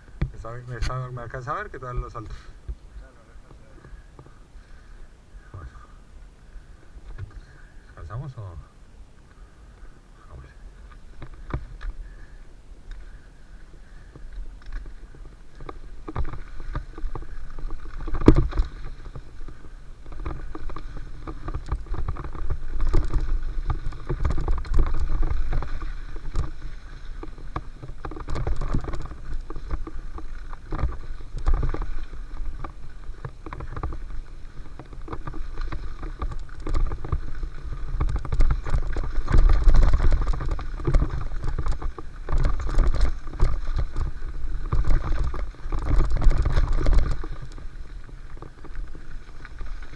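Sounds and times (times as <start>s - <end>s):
bike tyres rumbling on dirt: 0.0s - 49.9s
bike rattling and knocking: 14.0s - 49.9s.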